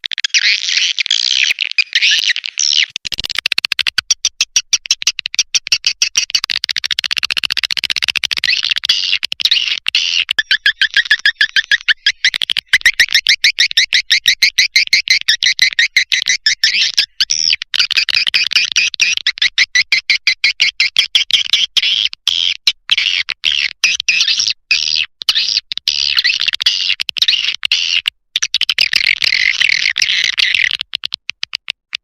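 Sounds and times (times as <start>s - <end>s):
recorded swiftlet twittering: 7.9s - 19.6s.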